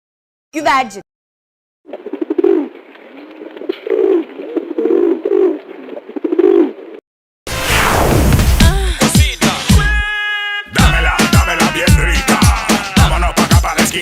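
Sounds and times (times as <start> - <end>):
pigeons cooing: 1.9 - 7.0.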